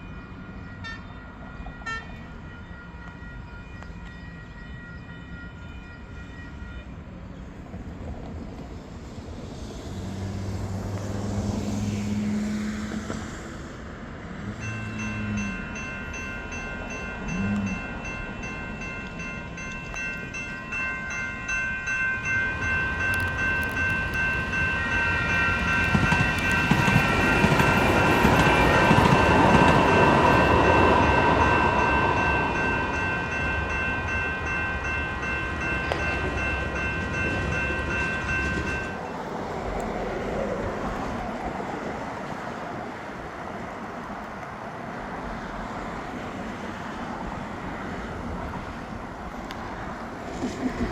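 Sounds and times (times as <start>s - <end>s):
railroad crossing bells ringing: 0.0s - 7.5s, 14.4s - 39.8s
train rumbling past: 0.0s - 50.9s
train horn blasts: 1.8s - 3.1s.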